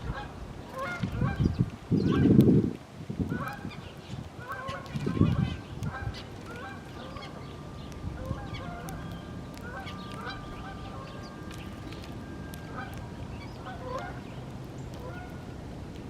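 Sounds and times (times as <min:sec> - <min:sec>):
geese honking: 0:00.1 - 0:01.4, 0:04.4 - 0:14.4, 0:15.0 - 0:15.5.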